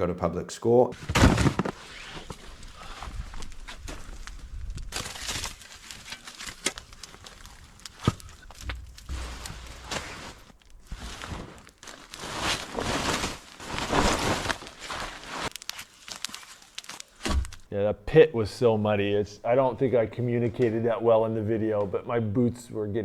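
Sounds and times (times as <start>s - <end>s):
footsteps crunching in snow: 1.1s - 17.6s.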